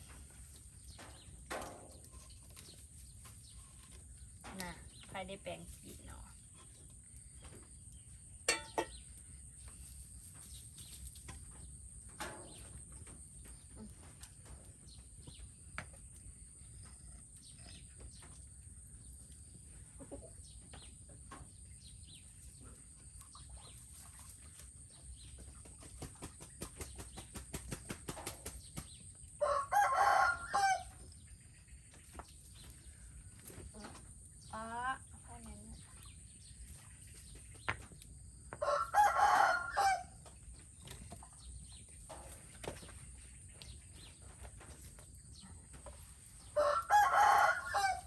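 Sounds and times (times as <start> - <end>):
rooster crowing: 29.4 - 30.9, 38.6 - 40.1, 46.6 - 48.0.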